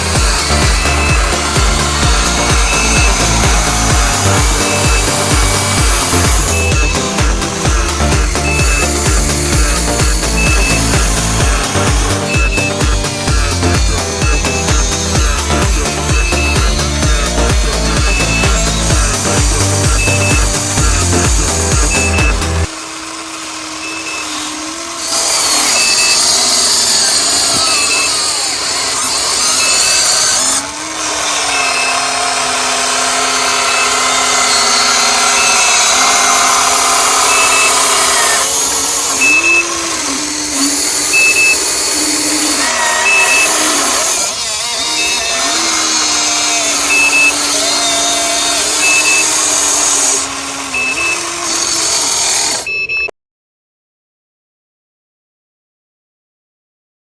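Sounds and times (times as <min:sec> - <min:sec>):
electric motors whining: 0:00.0 - 0:53.1
short high beep: 0:08.2 - 0:11.4, 0:19.8 - 0:22.5, 0:37.2 - 0:37.9, 0:39.2 - 0:39.7, 0:41.1 - 0:41.6, 0:46.9 - 0:47.4, 0:48.8 - 0:49.4, 0:50.8 - 0:51.2, 0:52.7 - 0:53.1.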